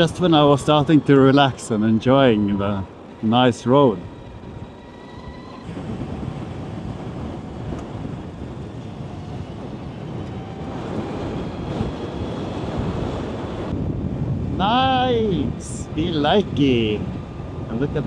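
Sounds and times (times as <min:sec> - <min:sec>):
electric motor whine: 0:00.0 - 0:13.7
tyre and suspension rumble on gravel: 0:00.0 - 0:13.7
wind buffeting microphone: 0:00.0 - 0:18.0.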